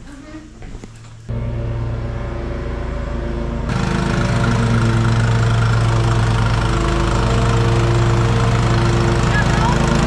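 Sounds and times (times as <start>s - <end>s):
diesel engine idling with clatter: 3.7s - 10.0s.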